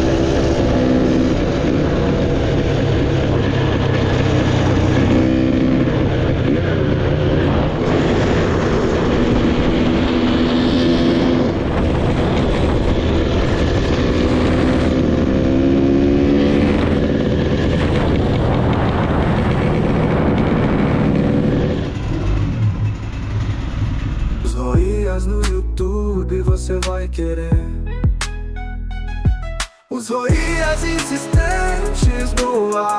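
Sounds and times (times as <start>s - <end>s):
motorcycle engines running: 0.0s - 25.4s.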